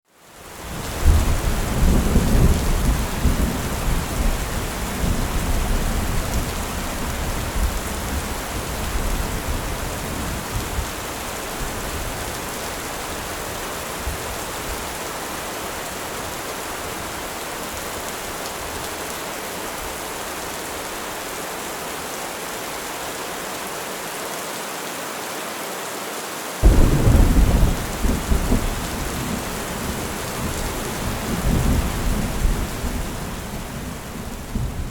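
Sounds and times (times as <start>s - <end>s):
rain hissing: 26.6s - 34.9s
rolling thunder: 26.6s - 34.9s
thunderclap: 26.6s - 34.9s.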